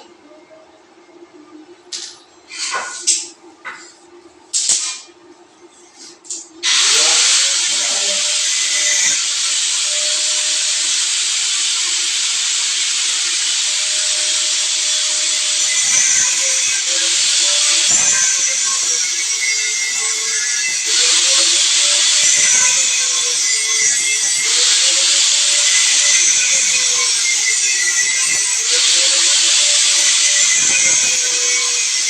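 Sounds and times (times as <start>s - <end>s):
power sprayer hissing: 6.6s - 32.0s
pump humming: 6.6s - 32.0s.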